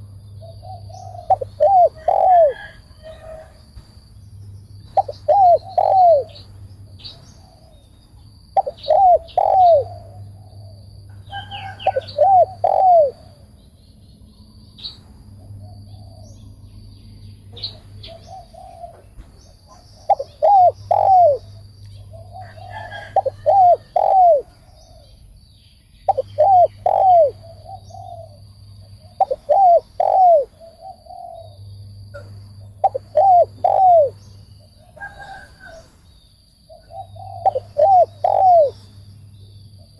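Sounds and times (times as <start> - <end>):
dove cooing: 0.4 - 3.5, 4.9 - 6.5, 7.1 - 7.8, 8.6 - 13.4, 17.6 - 19.1, 19.7 - 25.2, 26.1 - 35.9, 36.7 - 38.9
faint bird chirps: 4.8 - 15.0, 17.2 - 35.8, 36.7 - 39.9.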